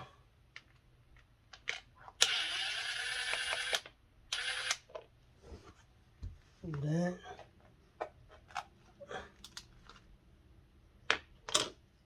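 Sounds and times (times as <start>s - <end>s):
small power tool motor: 2.2s - 3.8s, 4.4s - 4.8s.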